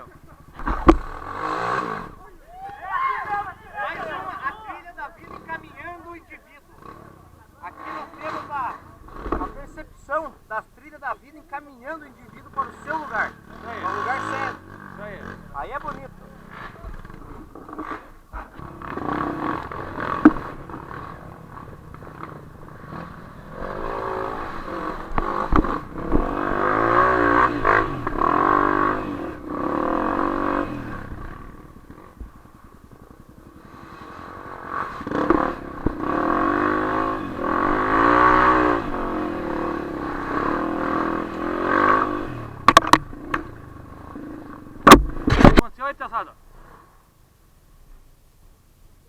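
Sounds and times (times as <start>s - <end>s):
off-road vehicle engine revving: 0.0s - 45.7s
sharp clattering knocks: 0.5s - 1.8s, 9.1s - 9.8s, 15.8s - 22.4s, 24.7s - 28.9s, 40.9s - 43.7s, 44.5s - 45.8s.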